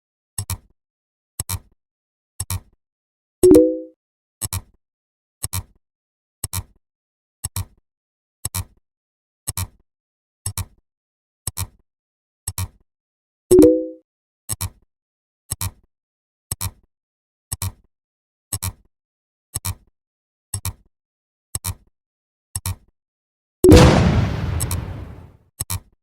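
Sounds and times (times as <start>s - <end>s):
pitched blast: 23.7s - 25.3s.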